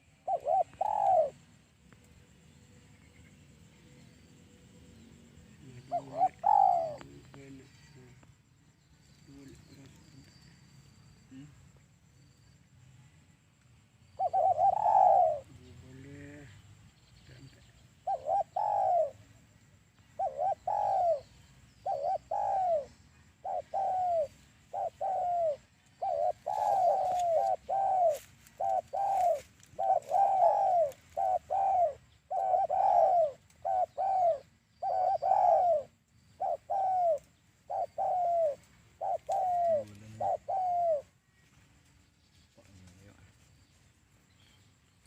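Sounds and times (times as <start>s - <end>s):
dove cooing: 0.0s - 1.6s, 5.5s - 8.0s, 14.2s - 16.6s, 18.0s - 19.4s, 20.1s - 41.3s.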